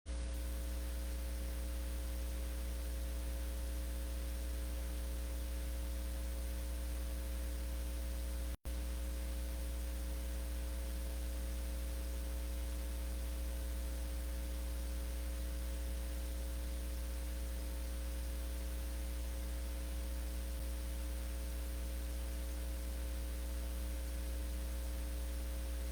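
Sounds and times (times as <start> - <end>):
electrical mains hum: 0.1 - 25.9.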